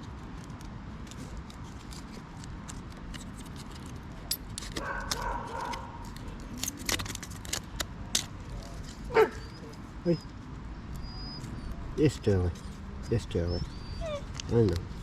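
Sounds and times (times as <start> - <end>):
knife scraping wood: 1.0 - 9.8
dog whining: 9.1 - 10.4, 11.0 - 14.8.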